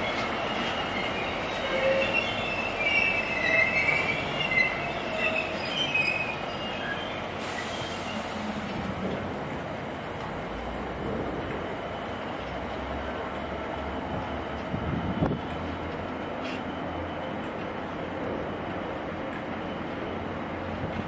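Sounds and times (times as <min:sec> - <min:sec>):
train wheels squealing: 0:00.0 - 0:08.8, 0:14.8 - 0:17.4.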